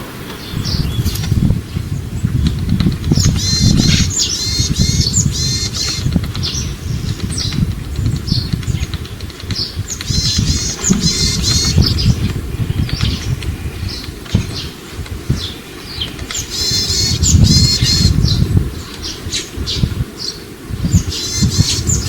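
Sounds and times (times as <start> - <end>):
bird calling ringing notes: 10.2 - 12.3
steady low rumble: 10.2 - 14.3.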